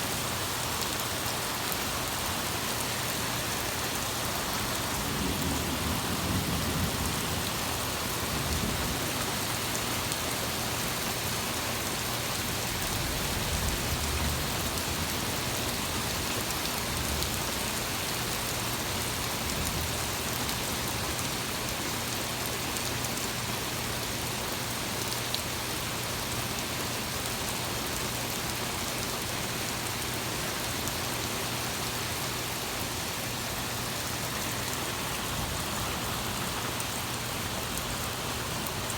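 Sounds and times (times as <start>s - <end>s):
torrential rain: 0.0s - 38.9s
low thunder rumbling: 5.0s - 9.1s.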